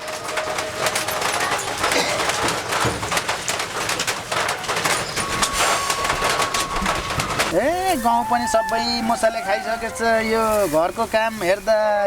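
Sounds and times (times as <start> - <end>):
pigeons cooing: 4.3 - 11.8
birds chirping: 4.6 - 12.0.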